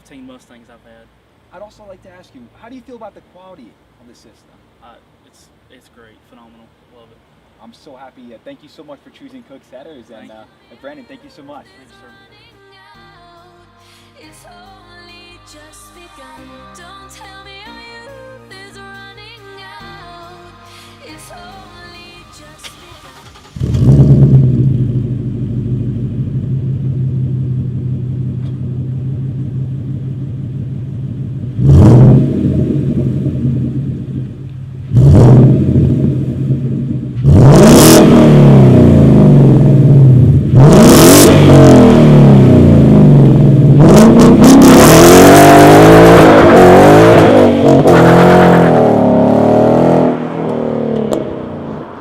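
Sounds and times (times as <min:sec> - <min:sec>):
car engine revving and idling: 0:21.4 - 0:52.0.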